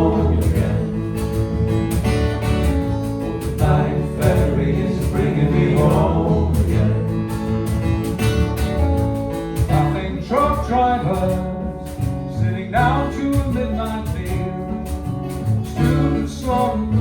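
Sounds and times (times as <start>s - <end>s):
several voices singing: 0.0s - 8.7s, 15.7s - 17.0s
acoustic guitar playing: 0.0s - 17.0s.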